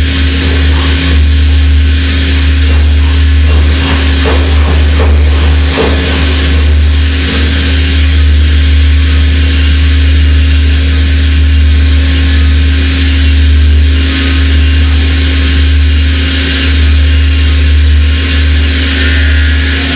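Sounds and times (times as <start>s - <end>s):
loud low machine hum: 0.0s - 19.9s
constant high tone: 17.0s - 19.9s.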